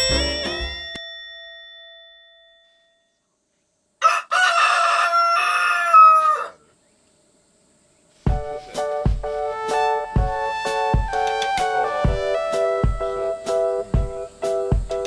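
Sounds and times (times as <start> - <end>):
music: 0.0 - 1.0, 8.2 - 15.0
rooster crowing: 4.0 - 6.6.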